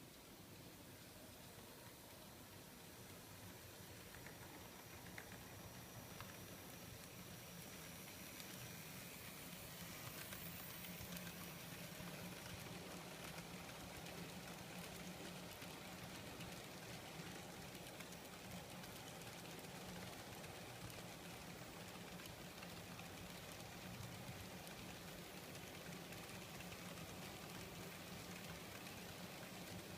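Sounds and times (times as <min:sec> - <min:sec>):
wheels clicking on track: 0:00.1 - 0:29.9
model train motor hum: 0:01.5 - 0:29.9.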